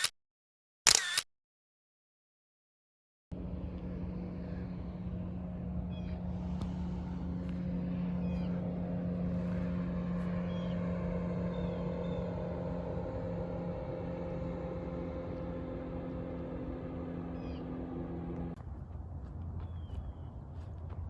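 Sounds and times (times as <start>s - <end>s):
low motor hum: 3.3s - 21.0s
faint high bird chirps: 17.3s - 17.8s.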